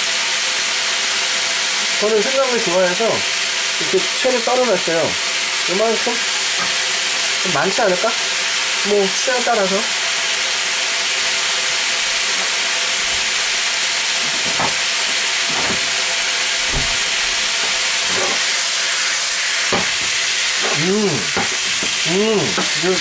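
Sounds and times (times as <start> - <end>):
vegetables sizzling in a wok: 0.0 - 23.0
spatula knocking on pan: 14.2 - 16.0, 19.7 - 22.8.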